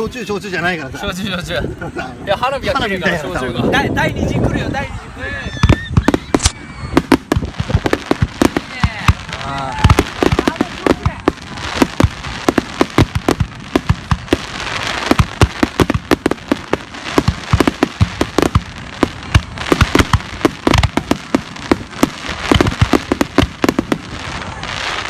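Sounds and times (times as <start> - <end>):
fireworks hiss: 5.5 - 25.0
fireworks bangs and crackles: 5.6 - 25.0.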